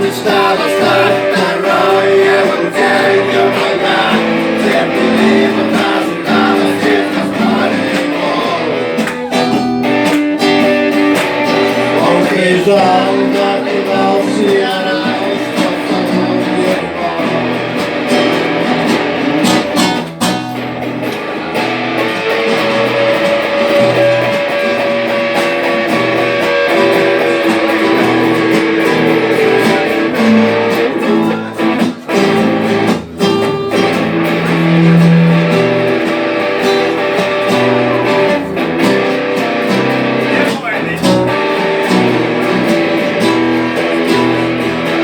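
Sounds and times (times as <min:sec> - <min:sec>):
rock guitar playing: 0:00.0 - 0:45.0
steady low bass line: 0:33.4 - 0:37.4.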